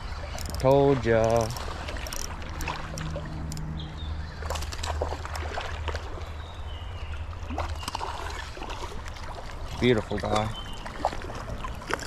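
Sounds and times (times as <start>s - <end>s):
water sloshing and splashing: 0.0s - 12.0s
sharp clicks: 0.3s - 3.7s.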